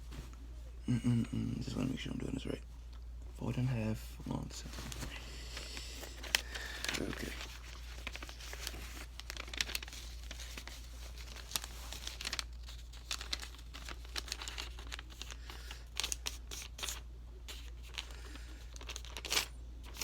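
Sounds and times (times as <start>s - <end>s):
paper crinkling and rustling: 4.5s - 20.0s
paper crease scraping: 4.7s - 20.0s.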